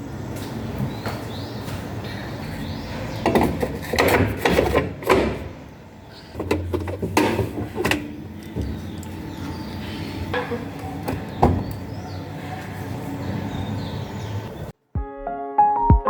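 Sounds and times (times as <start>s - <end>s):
objects knocking and clattering: 3.2s - 5.4s, 6.3s - 9.1s.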